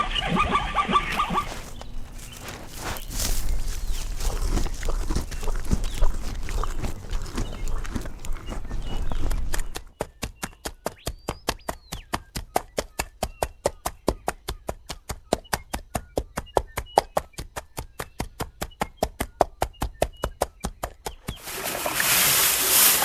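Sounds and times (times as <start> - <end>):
horse hooves clip-clopping: 0.7 - 11.0.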